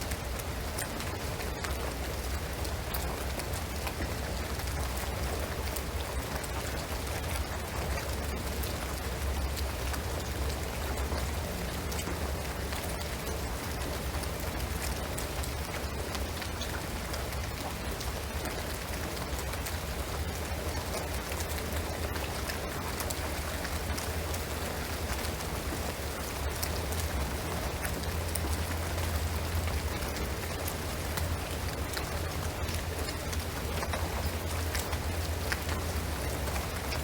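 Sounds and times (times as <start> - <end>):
rain on roof and trees: 0.0 - 37.0.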